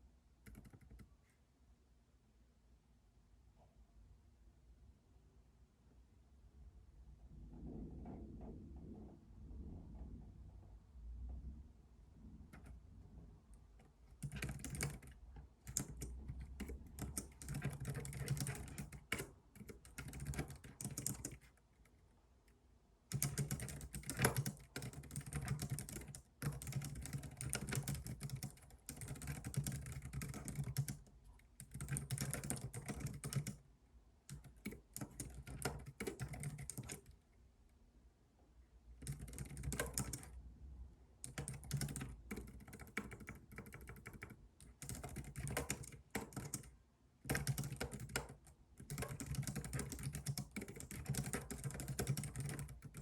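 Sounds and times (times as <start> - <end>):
typing on computer keyboard: 0.4 - 1.1, 12.5 - 12.8, 13.8 - 22.0, 23.1 - 33.6, 34.3 - 37.2, 39.0 - 40.4, 41.2 - 53.0.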